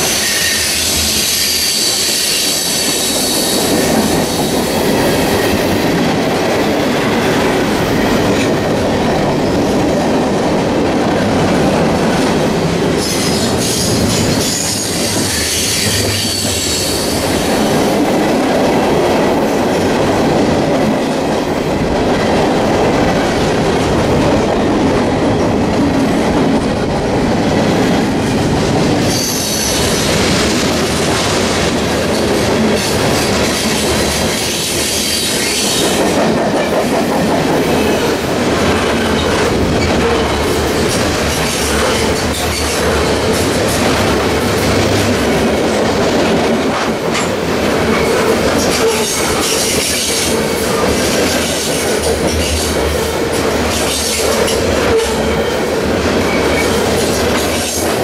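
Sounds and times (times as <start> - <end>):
clickety-clack over rail joints: 0.0 - 58.0
train wheels rumbling on rails: 0.0 - 58.0.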